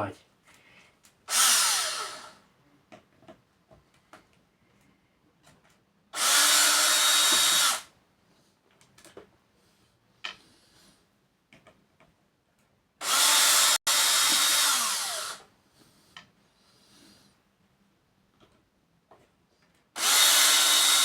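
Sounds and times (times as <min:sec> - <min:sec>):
cordless drill spinning: 0:01.3 - 0:02.4, 0:06.2 - 0:07.9, 0:13.0 - 0:15.5, 0:20.0 - 0:21.0
clicks and knocks of handling parts: 0:08.7 - 0:09.4, 0:11.5 - 0:12.8.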